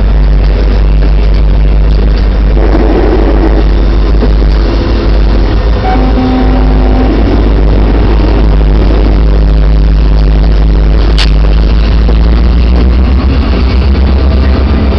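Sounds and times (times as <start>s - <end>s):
freight train rumbling past: 0.0s - 14.9s
steady horn tones: 4.6s - 10.2s.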